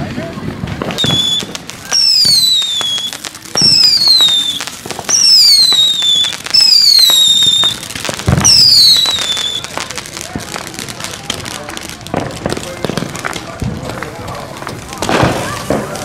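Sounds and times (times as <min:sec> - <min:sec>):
firework pops and crackle: 0:00.0 - 0:16.0
whistling fireworks: 0:00.0 - 0:16.0.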